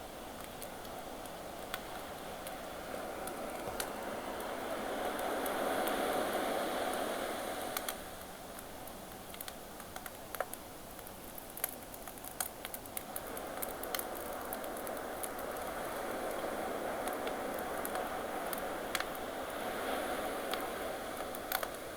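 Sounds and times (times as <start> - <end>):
campfire crackling and popping: 0.3 - 2.6, 7.6 - 19.3, 20.5 - 21.9
ocean waves: 2.7 - 8.2, 13.1 - 21.9.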